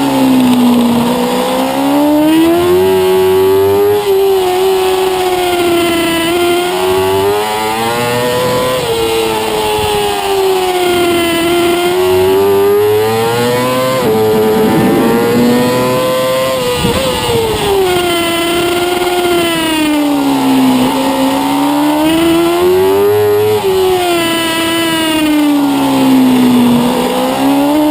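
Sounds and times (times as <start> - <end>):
motorcycle engine revving: 5.4 - 27.9.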